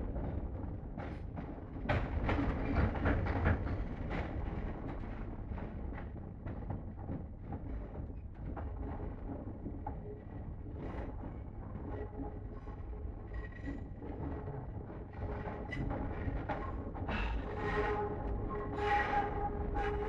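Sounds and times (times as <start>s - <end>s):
train rumble inside carriage: 0.0s - 20.0s.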